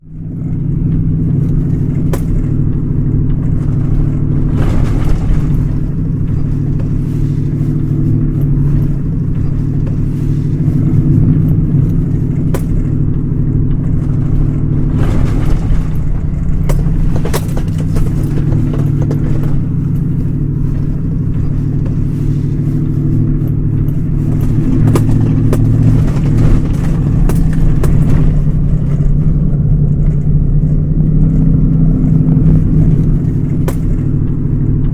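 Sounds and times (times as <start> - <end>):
truck engine and road drone: 0.0 - 34.9.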